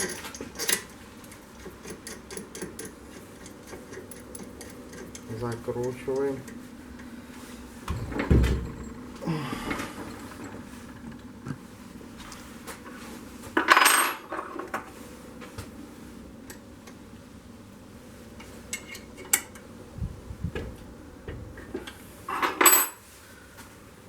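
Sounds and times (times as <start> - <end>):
metal tools clinking and clattering: 7.9 - 9.2.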